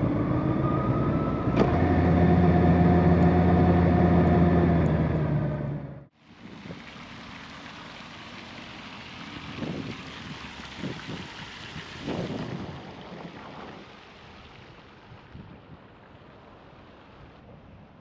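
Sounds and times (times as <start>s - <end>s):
wind noise on microphone: 9.4s - 14.0s.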